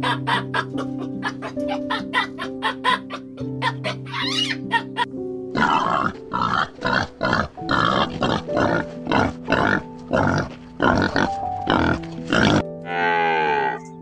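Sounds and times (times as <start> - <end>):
piano music: 0.0 - 14.0
pig grunting: 5.5 - 13.7.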